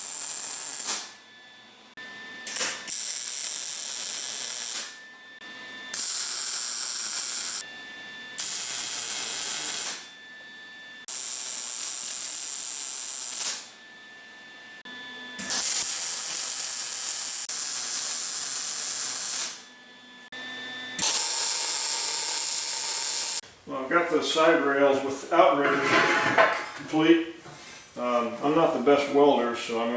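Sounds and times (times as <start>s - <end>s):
welding arc crackling: 0.0s - 1.1s, 2.5s - 4.9s, 6.0s - 7.6s, 8.4s - 10.0s, 11.1s - 13.7s, 15.4s - 19.6s, 21.0s - 23.4s
welding machine whine: 0.0s - 23.4s.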